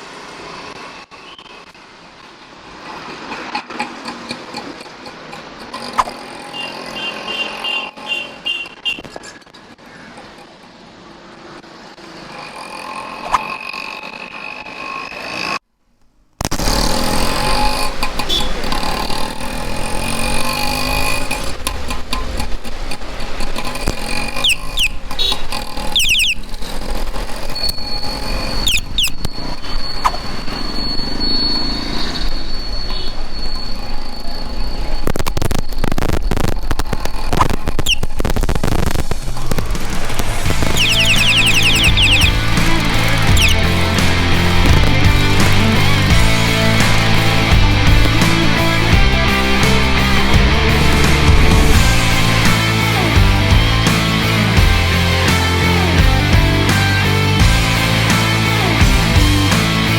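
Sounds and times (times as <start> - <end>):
cars passing: 0.0 - 15.6, 16.6 - 59.9
motorcycles passing: 0.0 - 15.6, 16.5 - 35.3, 36.6 - 59.9
traffic rumble: 0.0 - 59.9
short high-pitched sounds: 40.4 - 53.2.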